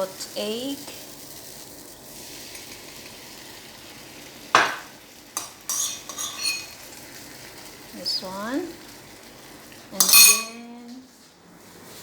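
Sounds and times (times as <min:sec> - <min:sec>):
egg sizzling in a pan: 0:00.0 - 0:12.0
utensil clinking against pan: 0:05.4 - 0:06.8, 0:10.0 - 0:10.7.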